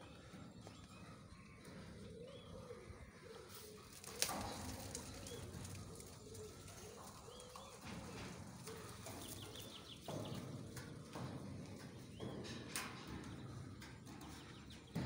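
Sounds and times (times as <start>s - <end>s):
faint birds calling: 0.0s - 15.0s.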